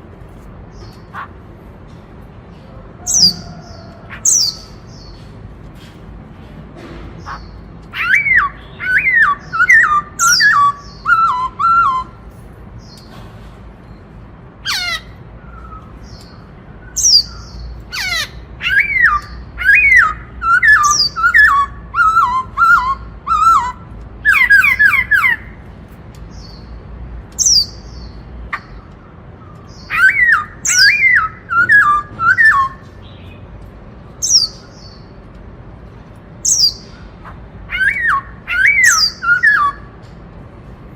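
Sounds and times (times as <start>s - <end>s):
bird whistled song phrases: 8.0s - 12.2s, 15.4s - 25.6s, 29.8s - 33.0s, 37.7s - 39.9s.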